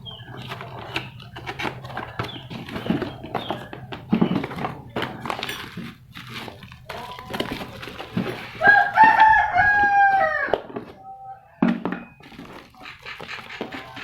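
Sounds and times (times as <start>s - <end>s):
packaging being handled: 0.3s - 10.1s
rooster crowing: 8.6s - 10.6s.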